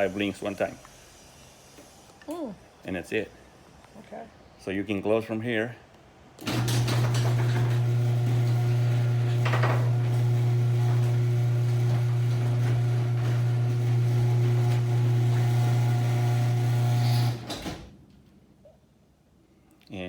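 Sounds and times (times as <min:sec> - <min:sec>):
garage door opener motor humming: 0:06.4 - 0:18.0.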